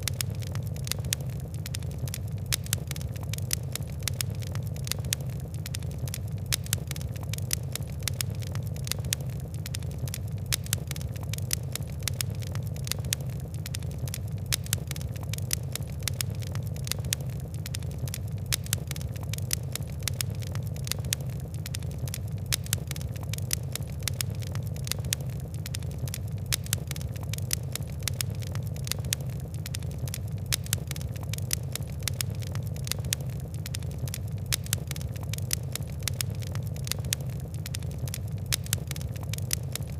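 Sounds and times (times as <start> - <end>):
fire crackling and popping: 0.0 - 39.9
low rumble of burning: 0.0 - 39.9.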